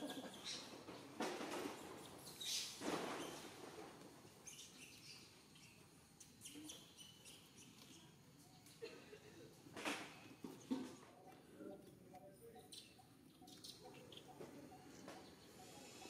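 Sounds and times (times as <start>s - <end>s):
faint high bird chirps: 12.4s - 16.0s.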